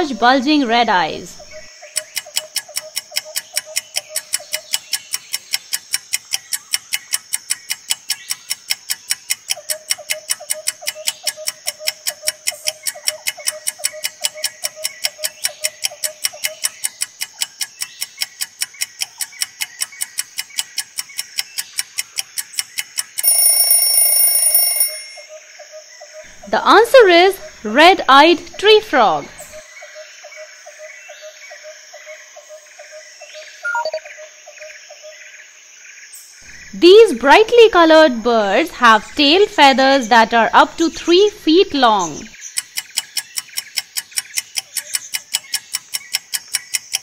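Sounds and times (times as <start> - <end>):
clock ticking: 0.0 - 25.2, 36.8 - 47.0
alarm ringing: 23.0 - 25.4, 33.6 - 34.0.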